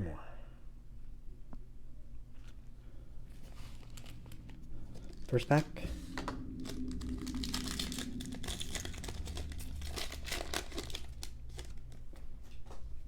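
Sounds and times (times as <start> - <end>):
wrapper tearing and crinkling: 3.3 - 12.2.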